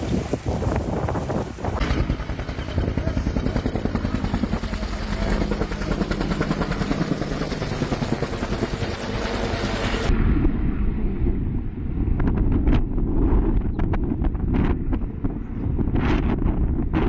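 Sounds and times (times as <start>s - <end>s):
helicopter rotor beating: 1.8s - 10.1s.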